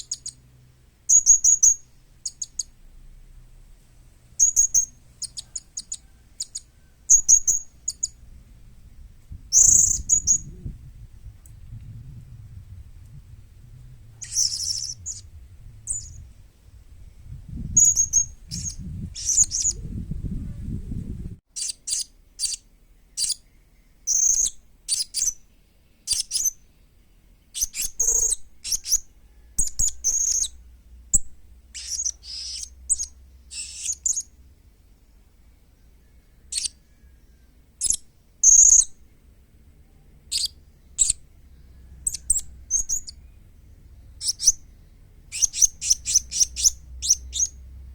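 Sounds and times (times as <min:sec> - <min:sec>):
parrot chirping: 0:01.1 - 0:02.7, 0:04.4 - 0:08.2, 0:09.5 - 0:10.5, 0:14.0 - 0:16.3, 0:17.8 - 0:19.8, 0:21.6 - 0:23.4, 0:27.6 - 0:29.0, 0:31.7 - 0:34.4, 0:36.5 - 0:37.0, 0:37.8 - 0:39.0, 0:40.3 - 0:41.2, 0:41.8 - 0:47.7
low rumble: 0:08.1 - 0:21.4.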